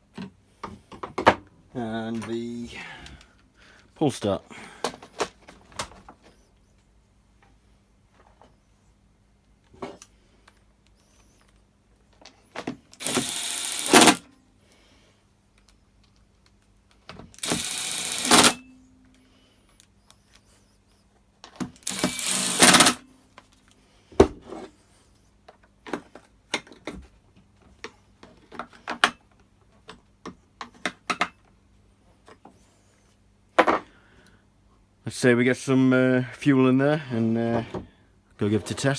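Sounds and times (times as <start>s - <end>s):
plastic parts and tools clicking: 9.7s - 14.3s, 15.6s - 18.6s, 21.4s - 23.8s
power screwdriver running: 12.9s - 14.2s, 17.4s - 18.6s, 21.8s - 23.0s.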